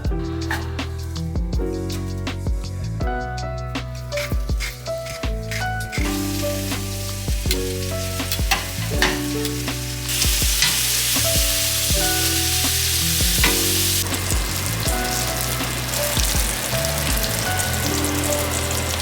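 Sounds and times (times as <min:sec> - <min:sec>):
background music: 0:00.0 - 0:19.0
food sizzling in a pan: 0:05.9 - 0:19.0.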